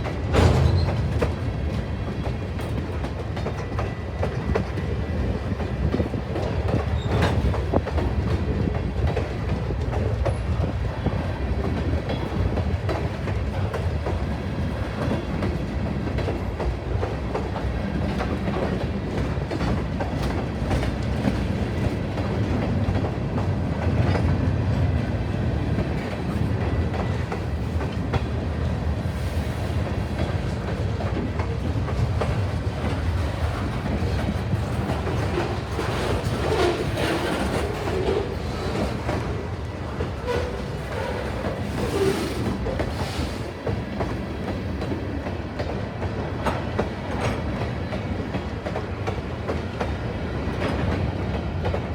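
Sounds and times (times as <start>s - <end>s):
train railcars rumbling: 0.0s - 51.9s
wheels clicking over rail joints: 30.1s - 51.9s.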